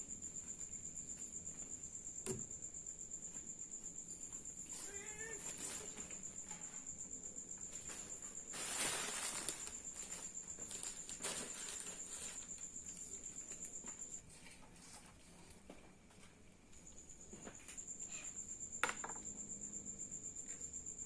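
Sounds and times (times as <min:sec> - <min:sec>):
insect trilling: 0:04.1 - 0:07.0, 0:18.0 - 0:18.9
short rustling: 0:07.9 - 0:12.5.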